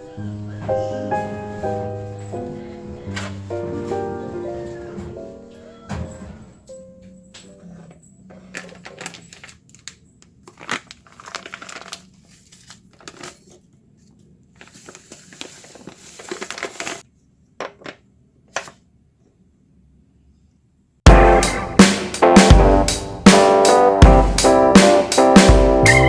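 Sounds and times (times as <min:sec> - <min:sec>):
crinkling rustle: 0:07.0 - 0:17.0.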